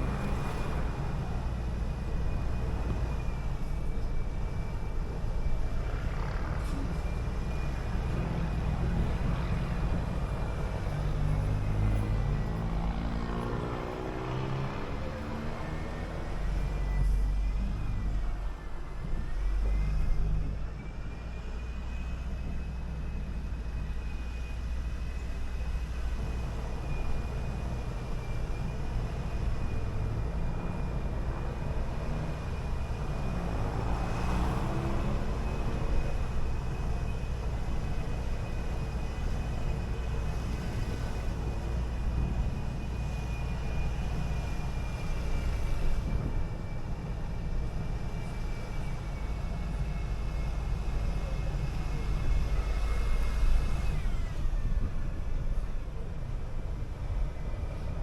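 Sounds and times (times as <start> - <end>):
bus engine and road rumble: 0.0 - 58.0
vehicle passing by: 11.1 - 17.0.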